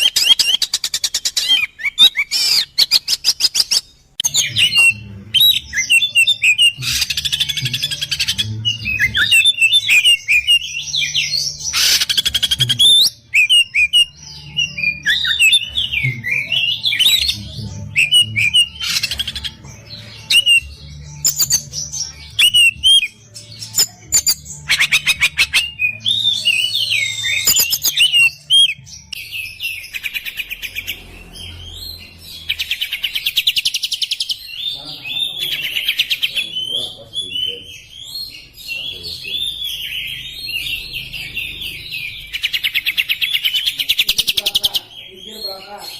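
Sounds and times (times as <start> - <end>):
bird singing: 0.0 - 45.9.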